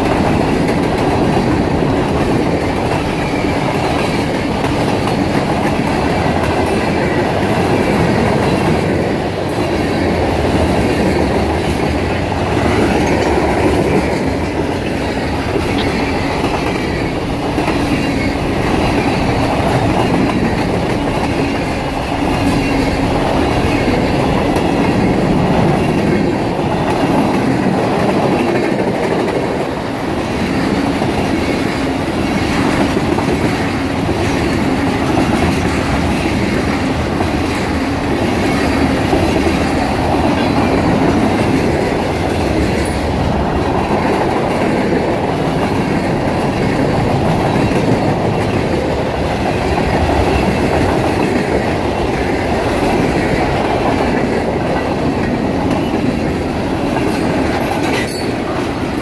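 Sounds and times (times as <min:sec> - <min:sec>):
train wheels clattering on rails: 0:00.0 - 0:59.0.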